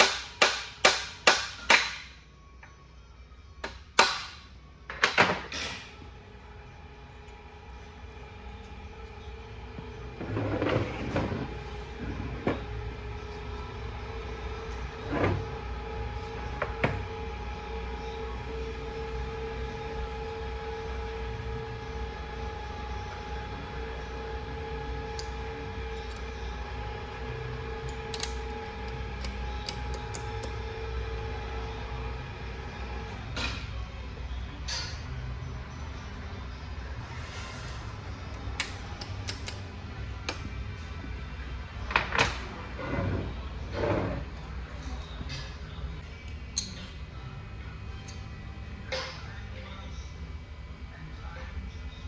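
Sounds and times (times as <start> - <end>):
shop machinery humming: 0.0 - 51.4
metal clanks and knocks: 3.6 - 6.0, 9.8 - 12.8, 33.2 - 34.0, 34.6 - 35.3.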